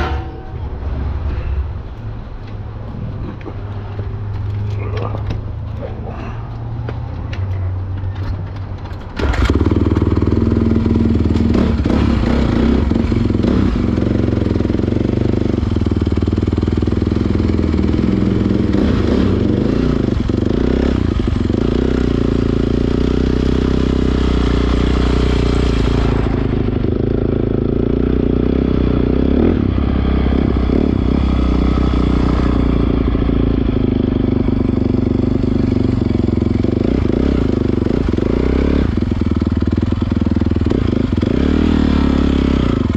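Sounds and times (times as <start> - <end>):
dirt bike engine running: 9.2 - 42.9.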